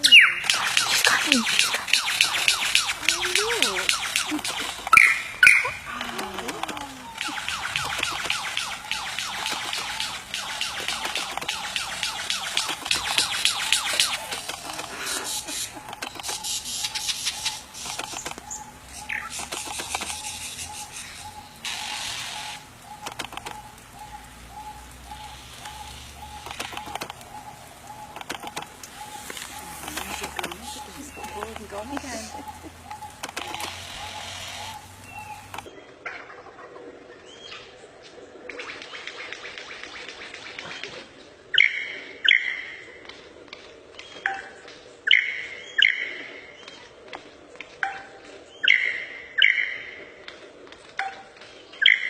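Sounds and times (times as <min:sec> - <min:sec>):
bird sharp upward calls: 0:00.0 - 0:35.7
bird rattling trill: 0:00.1 - 0:35.7
sharp clicks: 0:00.4 - 0:35.7.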